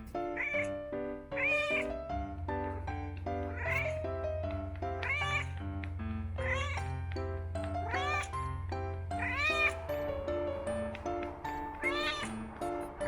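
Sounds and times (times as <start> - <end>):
background music with held notes: 0.0 - 13.0
cat meowing: 0.2 - 2.8, 3.4 - 4.2, 4.9 - 5.7, 6.4 - 7.0, 7.6 - 8.4, 9.1 - 10.1, 10.9 - 13.0.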